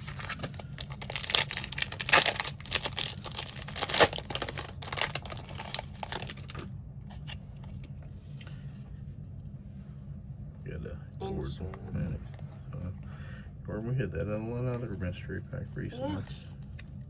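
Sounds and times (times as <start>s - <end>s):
foil wrapper tearing and crinkling: 0.0s - 6.7s.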